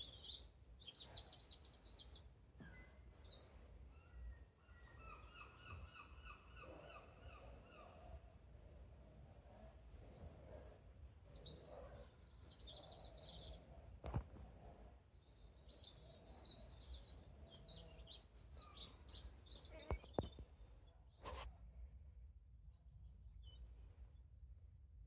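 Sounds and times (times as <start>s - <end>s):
songbirds twittering: 0.0s - 21.5s.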